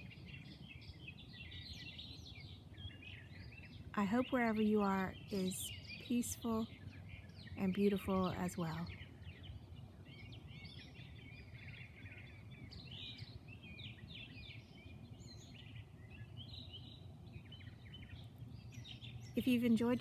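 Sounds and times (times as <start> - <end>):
songbirds chirping and singing: 0.0 - 20.0.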